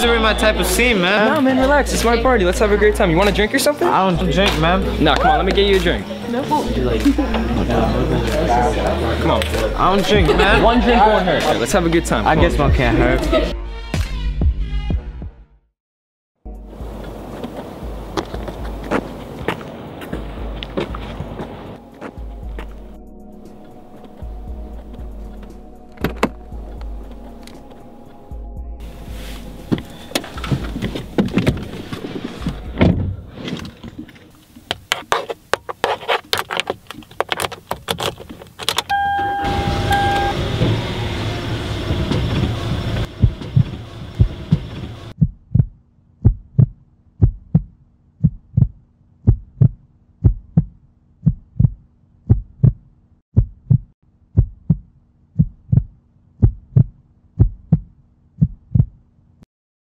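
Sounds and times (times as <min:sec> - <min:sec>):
car engine starting and running: 0:23.5 - 0:34.1, 0:37.3 - 0:45.2
car chime: 0:38.9 - 0:43.5
steady thumping: 0:41.7 - 0:59.0.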